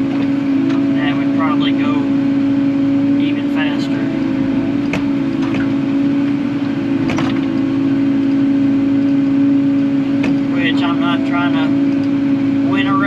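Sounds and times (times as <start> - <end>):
excavator diesel engine running: 0.0 - 13.0
short knocks: 7.0 - 7.6.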